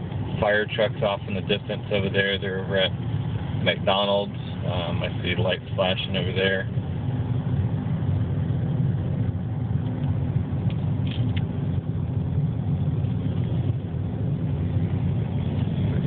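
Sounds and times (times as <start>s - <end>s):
car interior road noise: 0.0s - 16.0s.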